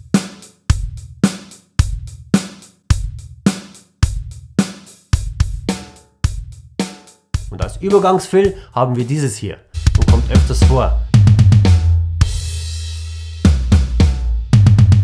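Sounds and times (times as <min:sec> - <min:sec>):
bass drum: 0:00.0 - 0:06.7, 0:07.4 - 0:08.7, 0:09.8 - 0:15.0
snare drum: 0:00.1 - 0:08.6, 0:09.8 - 0:11.9, 0:13.4 - 0:15.0.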